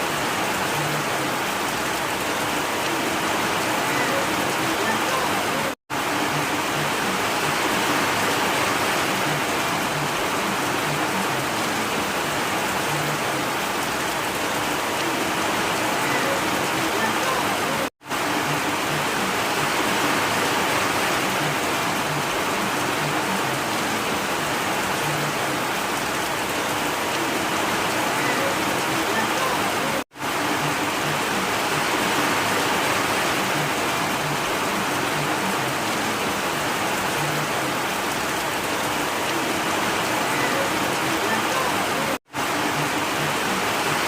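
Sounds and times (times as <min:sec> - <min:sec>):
steady rain falling: 0:00.0 - 0:44.0.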